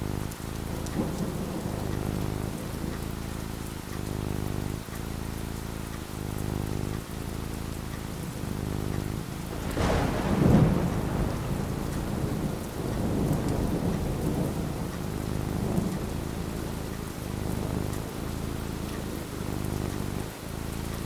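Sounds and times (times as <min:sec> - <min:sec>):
thunder rumbling: 0:00.0 - 0:04.8, 0:08.1 - 0:21.0
steady rain: 0:00.0 - 0:21.0.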